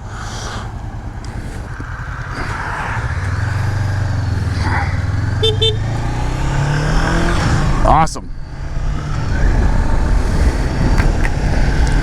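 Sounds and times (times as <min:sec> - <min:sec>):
motorcycle engine: 0:00.0 - 0:12.0
wind rushing over microphone: 0:00.0 - 0:12.0.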